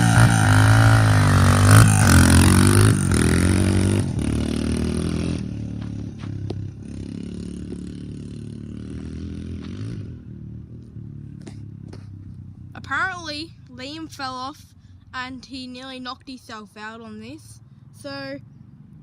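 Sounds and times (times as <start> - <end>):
motorbike engine revving: 0.0 - 13.3.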